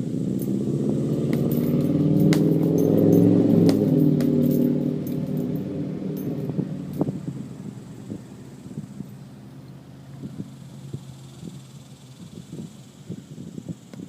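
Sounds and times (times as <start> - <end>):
vehicle engine passing: 0.0 - 11.8
sharp clicks and jangles: 0.2 - 7.6.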